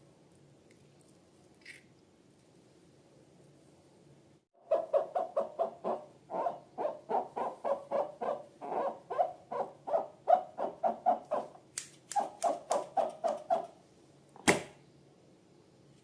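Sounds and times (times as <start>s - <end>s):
sharp snap: 11.7s - 12.9s, 14.4s - 14.8s.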